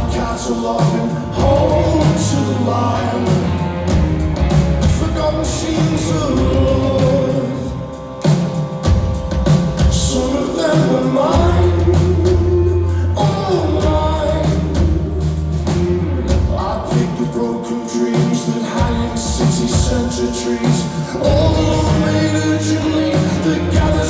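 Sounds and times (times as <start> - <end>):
person singing: 0.0 - 24.0
rock band playing live: 0.0 - 24.0.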